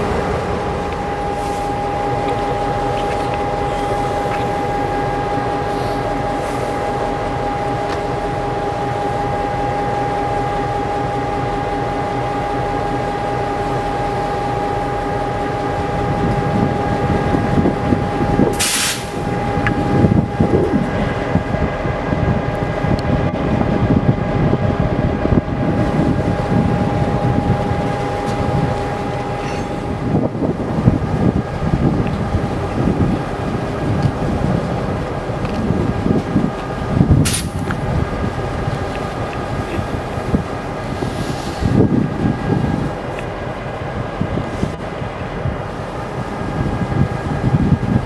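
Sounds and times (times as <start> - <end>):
high steady tone: 0.0 - 22.6
diesel locomotive engine drone: 0.0 - 48.0
short hiss: 18.6 - 19.2.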